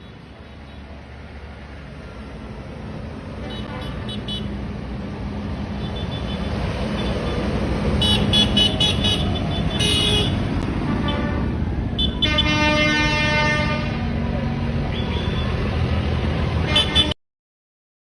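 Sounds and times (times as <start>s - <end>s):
tractor engines running: 0.0s - 17.1s
horn toots: 8.0s - 14.2s, 16.6s - 17.2s
long horn blast: 8.0s - 14.3s, 16.6s - 17.2s.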